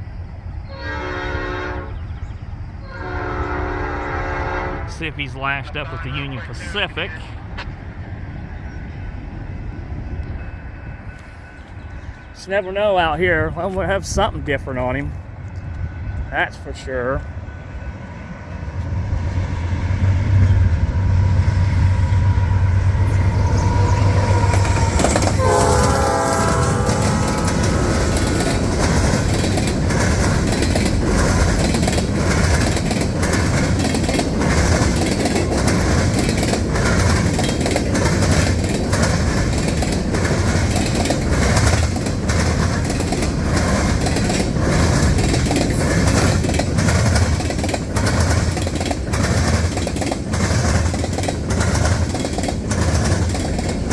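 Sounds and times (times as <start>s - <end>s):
locomotive engines humming: 0.0s - 53.9s
train air horn chord: 0.7s - 2.0s, 2.8s - 5.0s, 23.0s - 28.4s
train cars clicking over rail joints: 22.2s - 53.9s.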